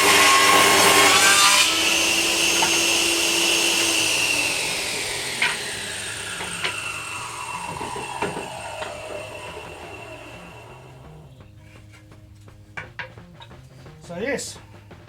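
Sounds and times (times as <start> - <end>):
power saw winding down: 0.0 - 11.4.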